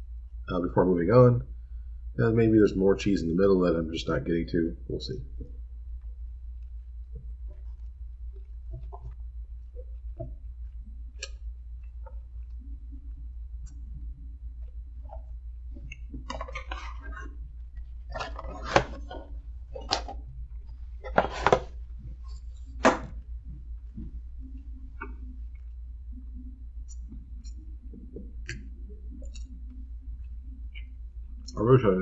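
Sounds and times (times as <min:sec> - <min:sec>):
steady low hum: 0:00.0 - 0:32.0
mouth clicks and smacks: 0:23.1 - 0:31.6.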